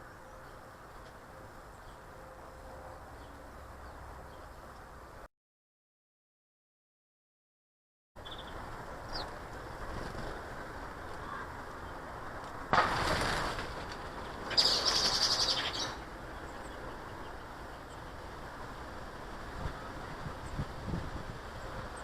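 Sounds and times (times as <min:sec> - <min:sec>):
steady outdoor hiss: 0:00.0 - 0:05.3, 0:08.2 - 0:22.0
faint high bird chirps: 0:08.2 - 0:09.3
loud flurries of bird sound: 0:08.2 - 0:12.0, 0:12.7 - 0:18.2.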